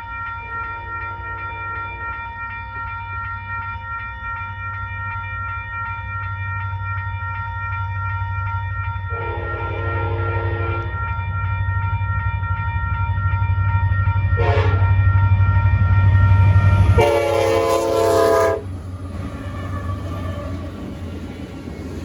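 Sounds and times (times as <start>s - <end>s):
crossing bell ringing: 0.0s - 22.0s
locomotive engine rumble: 8.7s - 22.0s
locomotive air horn blasts: 9.2s - 10.9s, 14.4s - 14.9s, 16.9s - 18.8s.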